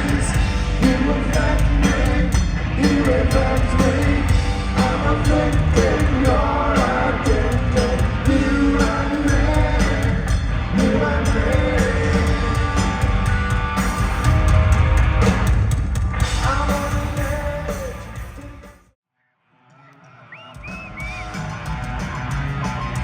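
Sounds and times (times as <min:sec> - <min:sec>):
person singing: 0:00.0 - 0:13.0
live punk rock band: 0:00.0 - 0:18.9, 0:20.5 - 0:23.0.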